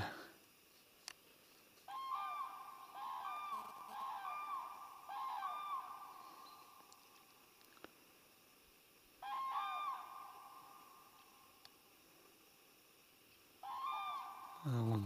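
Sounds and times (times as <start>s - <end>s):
large birds calling: 1.8s - 7.5s, 9.1s - 11.7s, 13.6s - 15.0s.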